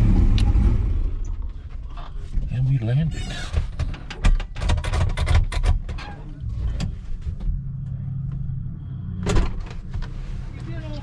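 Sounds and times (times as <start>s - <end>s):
rapid clicks and knocks: 3.5s - 5.9s
car engine idling: 6.2s - 11.0s.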